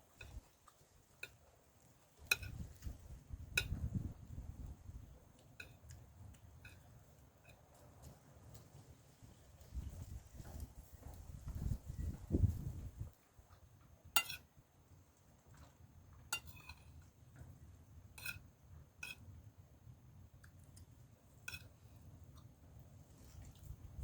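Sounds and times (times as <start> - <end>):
cutlery clinking against a dish: 2.2 - 2.7, 6.6 - 7.6, 14.2 - 14.5, 16.4 - 16.9, 18.2 - 18.4, 19.0 - 19.3, 21.5 - 21.8.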